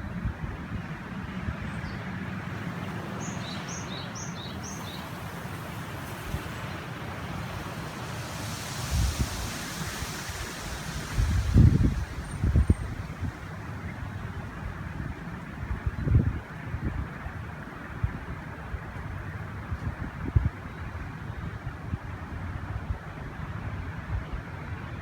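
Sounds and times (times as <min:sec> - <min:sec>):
wind gusting on microphone: 0:00.0 - 0:24.5
river rushing: 0:02.2 - 0:14.9
small bird chirping: 0:02.8 - 0:06.8.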